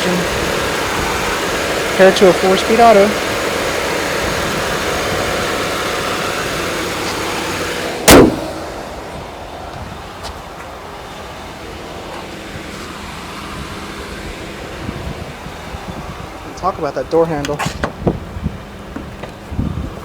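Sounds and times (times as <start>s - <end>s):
car engine idling: 0.0s - 20.0s
car hood slamming shut: 8.0s - 9.0s, 17.6s - 18.1s.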